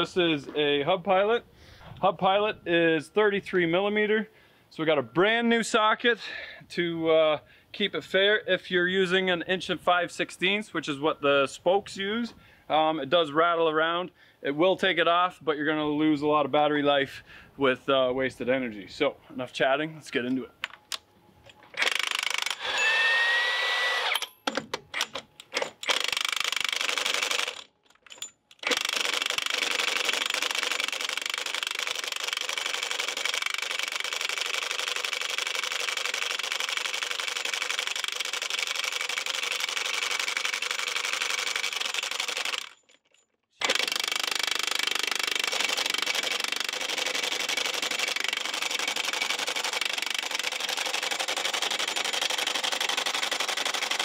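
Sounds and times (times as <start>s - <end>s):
impact wrench hammering: 43.6s - 54.0s.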